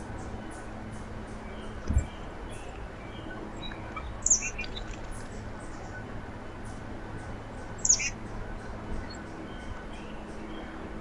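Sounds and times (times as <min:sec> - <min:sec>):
songbird sharp chirp: 0:01.5 - 0:05.0, 0:07.8 - 0:08.2.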